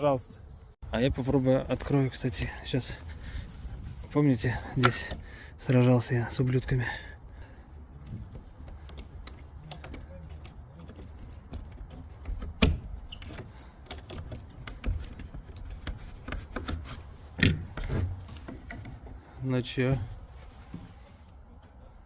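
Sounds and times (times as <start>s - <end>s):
keys jangling: 3.0s - 5.4s, 8.4s - 16.2s
lock clicking and rattling: 3.3s - 5.7s, 8.2s - 19.2s.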